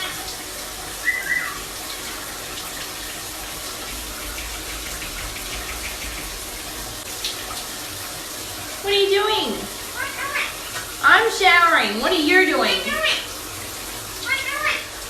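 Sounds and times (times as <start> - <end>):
shower spray running: 0.0 - 15.0.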